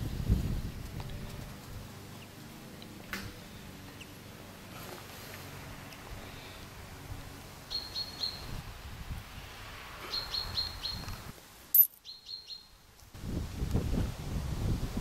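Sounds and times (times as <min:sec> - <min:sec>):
wind rumble on microphone: 0:00.0 - 0:02.0, 0:08.2 - 0:11.4, 0:13.1 - 0:15.0
small bird chirping: 0:03.9 - 0:04.2, 0:07.7 - 0:08.6, 0:10.0 - 0:12.8.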